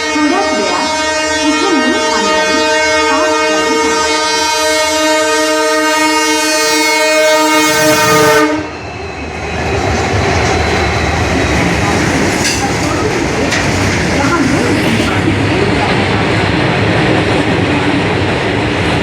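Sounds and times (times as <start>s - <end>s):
train horn blast: 0.0s - 8.8s
train passing at speed: 0.0s - 19.0s.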